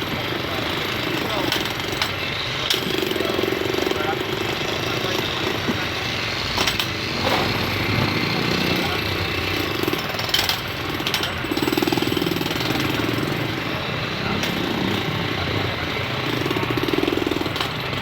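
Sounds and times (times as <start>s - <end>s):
powered hammering tool pounding: 0.0s - 18.0s
sharp metal clanks: 6.5s - 13.3s.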